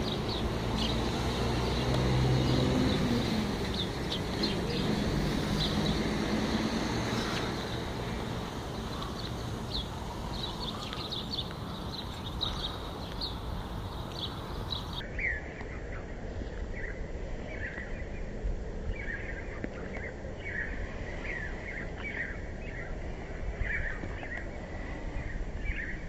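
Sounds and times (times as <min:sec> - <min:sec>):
low engine rumble: 0:00.0 - 0:15.0
small birds chirping: 0:00.0 - 0:26.0.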